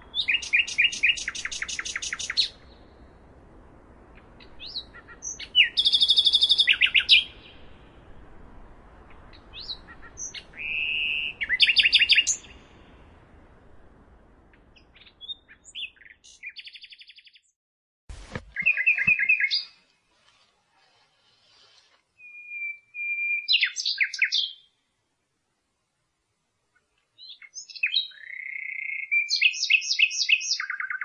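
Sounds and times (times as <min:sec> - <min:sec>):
nightingale singing: 0:00.0 - 0:03.0, 0:04.0 - 0:13.0, 0:14.5 - 0:17.5, 0:18.3 - 0:19.8, 0:21.5 - 0:24.8, 0:26.7 - 0:31.0
faint background hiss: 0:00.0 - 0:16.4, 0:18.1 - 0:30.5.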